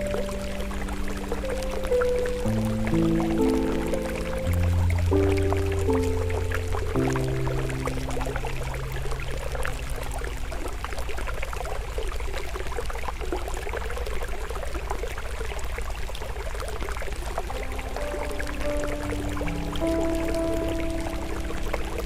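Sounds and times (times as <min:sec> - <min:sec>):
stream water flowing: 0:00.0 - 0:22.0.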